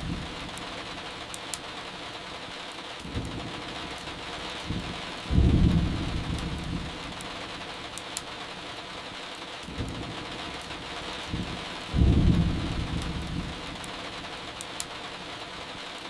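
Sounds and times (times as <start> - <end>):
thunder rumbling: 0.0 - 1.0, 3.1 - 7.8, 9.7 - 14.5
firewood crackling: 0.0 - 15.4
steady rain: 0.0 - 16.0.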